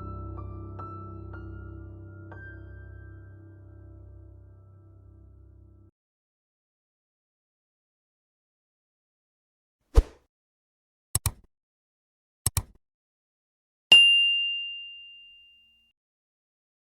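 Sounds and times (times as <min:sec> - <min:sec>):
double clicks: 0:11.2 - 0:11.5, 0:12.5 - 0:12.8
bell-like ding: 0:13.9 - 0:15.9.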